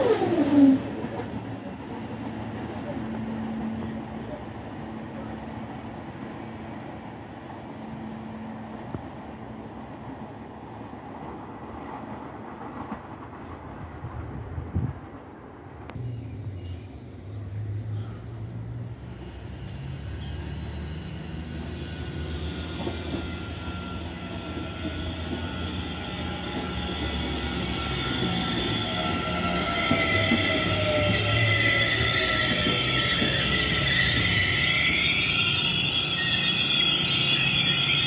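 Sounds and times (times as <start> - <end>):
train rumble: 0.0 - 38.0
high squealing tones: 20.7 - 38.0.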